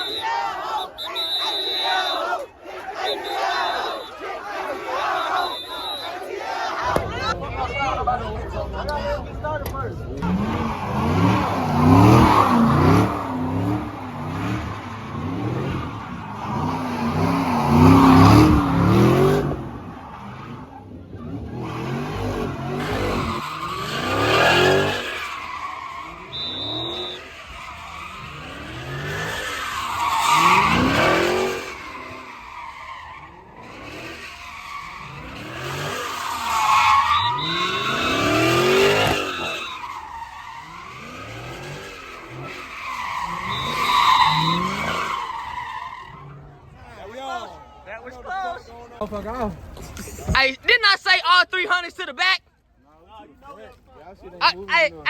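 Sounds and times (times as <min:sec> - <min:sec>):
tyres squealing and skidding: 0:00.0 - 0:52.4
car engine revving: 0:06.8 - 0:47.0.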